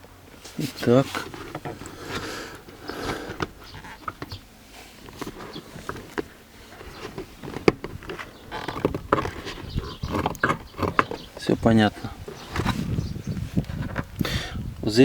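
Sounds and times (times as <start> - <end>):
light clicks and knocks: 1.1 - 12.8.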